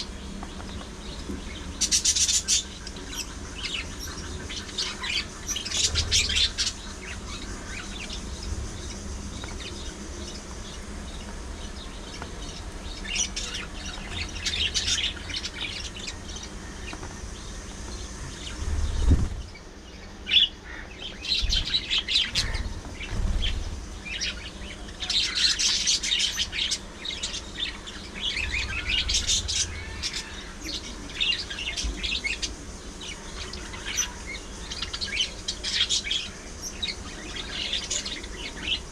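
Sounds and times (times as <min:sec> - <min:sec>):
budgerigars chirping: 0:20.3 - 0:38.9.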